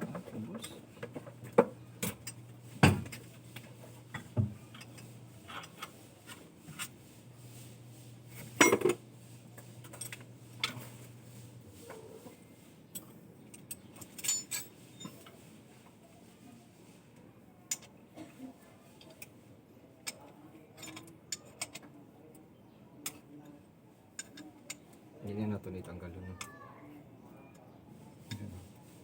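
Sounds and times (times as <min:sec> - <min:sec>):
metal tools clinking and knocking: 0:08.4 - 0:09.0, 0:13.0 - 0:15.4, 0:20.0 - 0:21.9.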